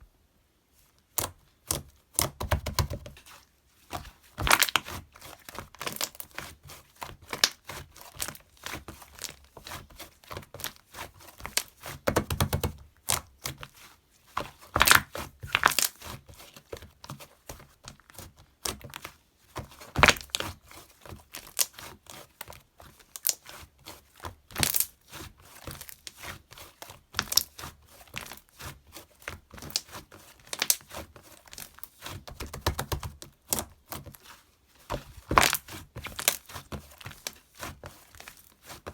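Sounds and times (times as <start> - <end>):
crinkling and rustling: 0.7 - 38.9.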